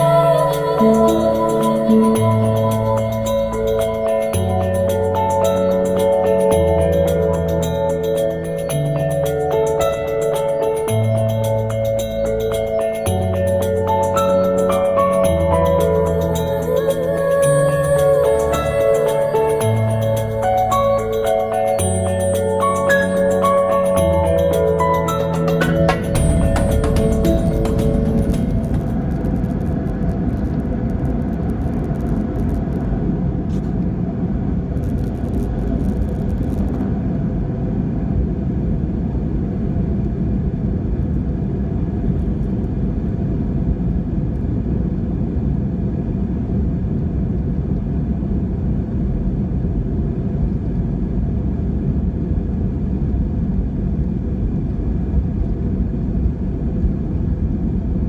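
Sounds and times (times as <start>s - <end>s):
aircraft cabin rumble: 25.6s - 58.0s.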